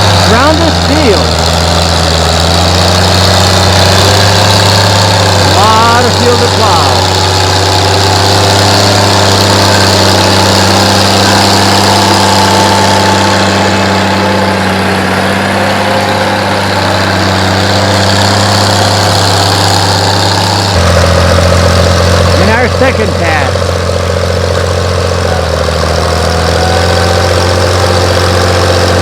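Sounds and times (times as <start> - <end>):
tractor engine droning: 0.0 - 29.0.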